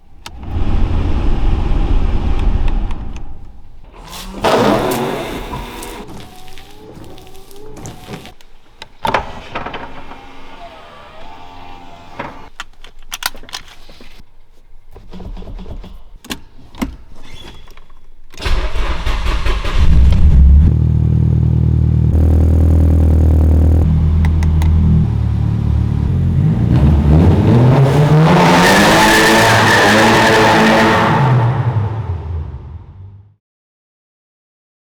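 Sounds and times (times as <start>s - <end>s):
car engine starting and idling: 0.0s - 8.4s, 18.4s - 32.8s
car engine revving: 0.2s - 6.1s, 18.4s - 32.9s.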